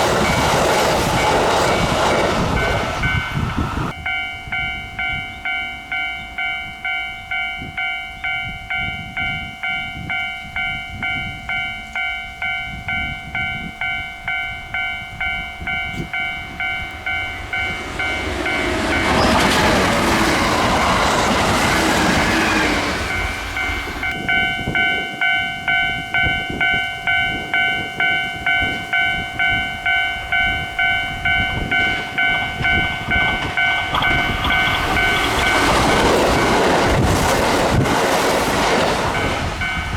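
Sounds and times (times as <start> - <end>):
level crossing bell ringing: 0.0 - 37.1, 39.1 - 39.9
train wheels clattering: 15.9 - 30.0, 30.6 - 39.9.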